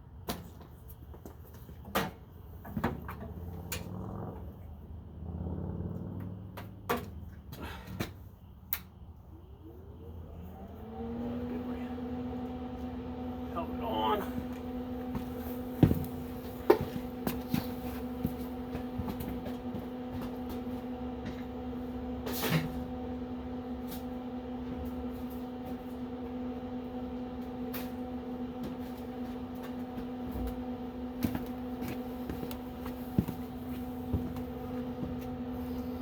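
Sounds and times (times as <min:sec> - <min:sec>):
welder transformer hum: 0:09.4 - 0:36.0.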